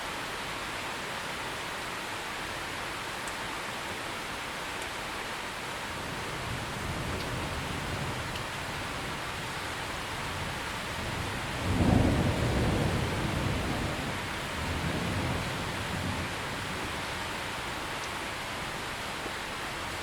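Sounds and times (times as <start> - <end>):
heavy rain hissing: 5.9 - 20.0
thunder rumbling: 10.2 - 17.0.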